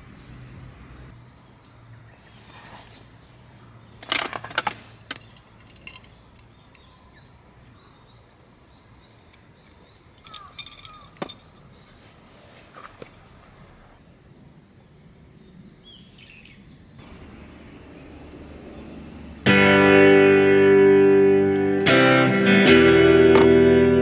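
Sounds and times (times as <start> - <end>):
faint outdoor background: 0.0 - 24.0
clicks and clatter of handling: 4.0 - 6.9, 9.3 - 11.4.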